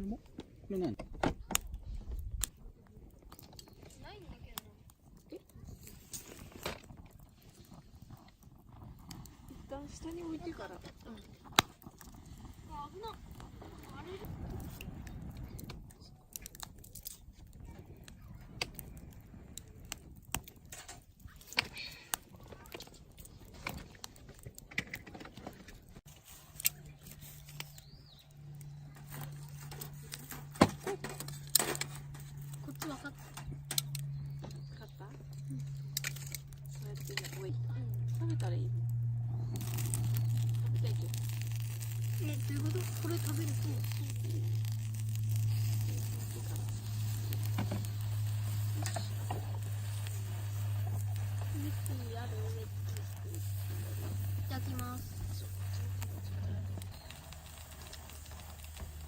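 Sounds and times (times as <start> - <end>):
steady low hum: 0.0 - 59.0
food sizzling in a pan: 39.6 - 59.0.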